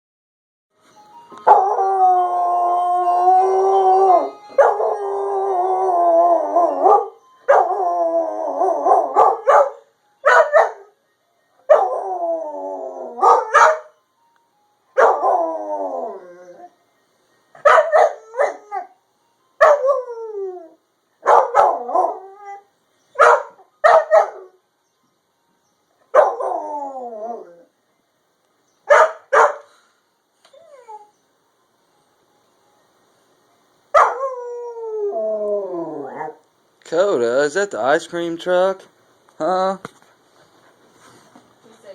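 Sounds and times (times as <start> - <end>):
puppy howling: 1.4 - 10.9, 11.7 - 13.9, 19.6 - 24.5, 26.2 - 27.7, 34.0 - 36.4.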